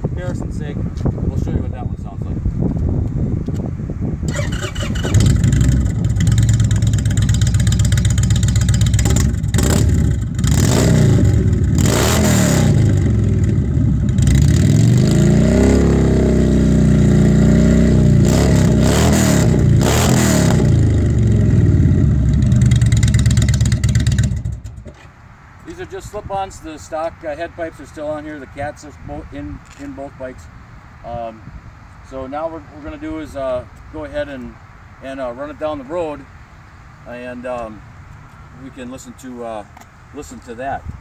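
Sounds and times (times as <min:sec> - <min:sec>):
motorcycle engine idling and revving: 0:04.2 - 0:25.1.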